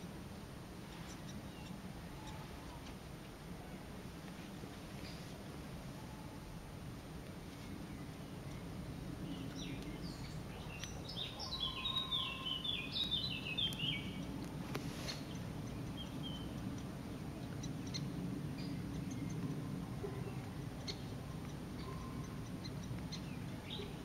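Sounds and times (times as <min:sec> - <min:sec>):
low background noise: 0:00.0 - 0:24.0.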